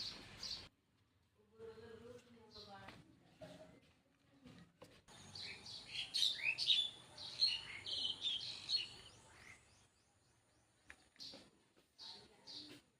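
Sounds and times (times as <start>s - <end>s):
birds chirping: 0.0s - 0.7s, 5.1s - 12.9s.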